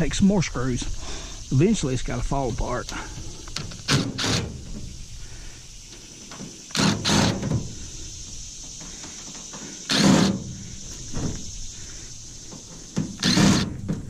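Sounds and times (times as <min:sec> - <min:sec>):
power drill backing out screws: 0:09.9 - 0:10.4, 0:12.9 - 0:14.0.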